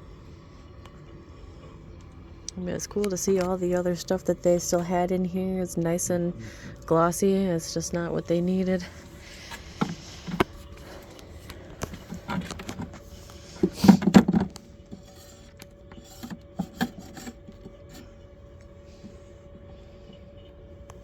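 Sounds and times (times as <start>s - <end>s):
wood scraping on wood: 8.8s - 18.2s
wooden frames knocking and clicking: 13.6s - 14.6s.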